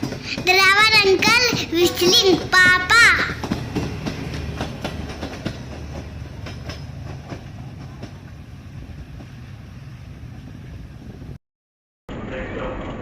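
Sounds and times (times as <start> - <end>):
wheels clicking over rail joints: 0.0 - 8.4
train rumbling on rails: 0.0 - 11.4.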